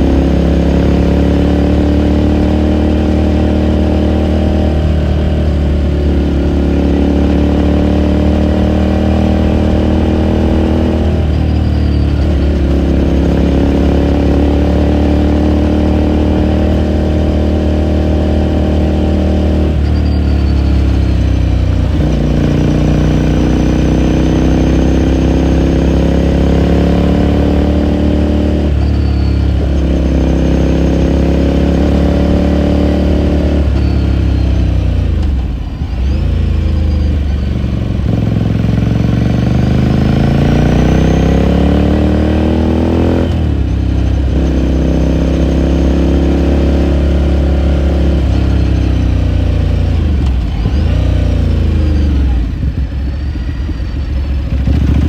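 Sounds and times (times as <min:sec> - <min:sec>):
motorcycle exhaust accelerating: 0:00.0 - 0:55.0.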